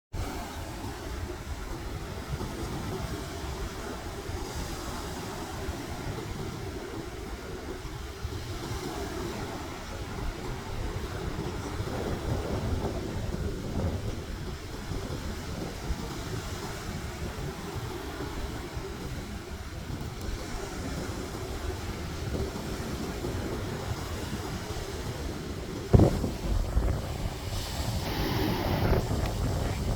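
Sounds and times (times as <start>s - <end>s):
wind buffeting microphone: 0.1s - 29.9s
sea waves washing: 0.2s - 29.9s
loud thump: 25.9s - 26.7s.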